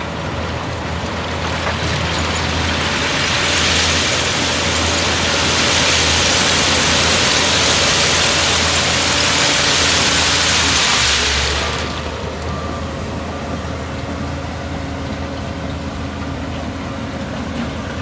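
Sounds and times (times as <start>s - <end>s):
heavy diesel engine running: 0.0s - 18.0s
loud rushing noise: 2.4s - 12.3s.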